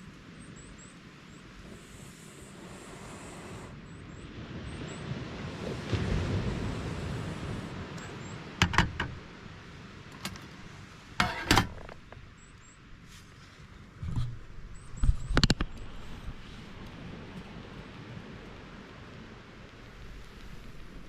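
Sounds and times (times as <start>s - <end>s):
short knocks and clatters: 8.6s - 9.2s.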